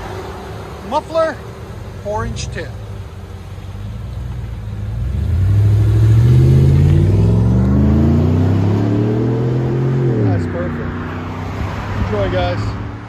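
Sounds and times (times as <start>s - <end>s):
engine revving with deep exhaust: 3.8s - 11.7s.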